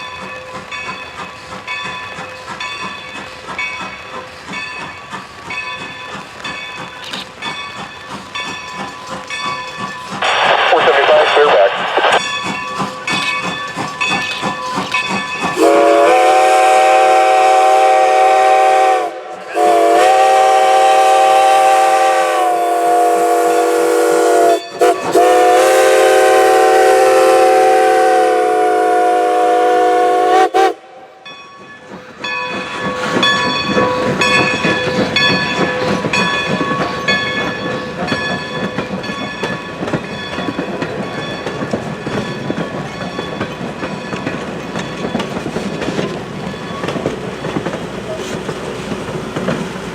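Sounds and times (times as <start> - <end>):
wheels clacking over rail joints: 0.0 - 10.4, 12.2 - 15.8, 31.3 - 49.9
train rumbling past: 0.0 - 49.9
steam whistle blasts: 15.6 - 31.2.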